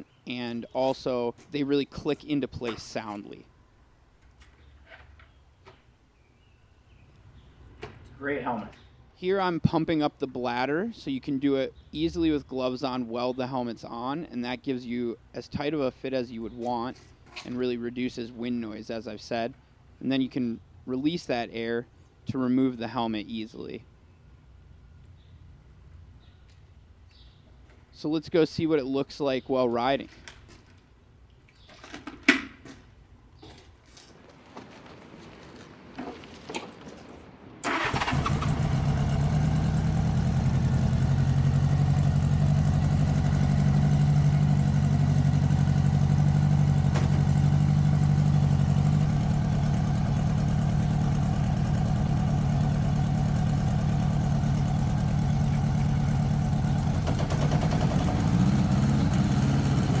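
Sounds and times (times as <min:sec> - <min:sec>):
motorcycle engine running: 0:37.9 - 1:00.0
sharp clicks and knocks: 0:57.0 - 0:58.0.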